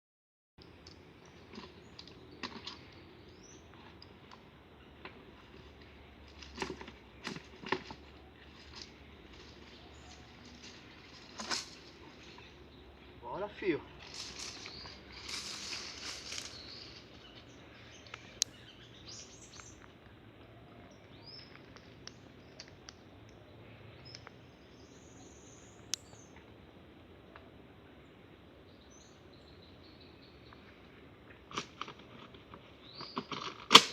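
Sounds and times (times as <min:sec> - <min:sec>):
rustling: 0:05.1 - 0:12.6, 0:14.0 - 0:17.8.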